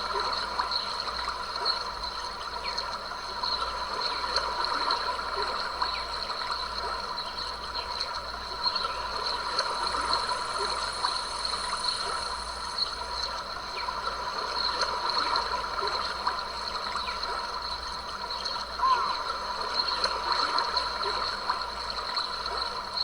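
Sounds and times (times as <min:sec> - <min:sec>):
stream trickling and gurgling: 0:00.0 - 0:23.0
steady high-pitched tones: 0:09.2 - 0:13.4.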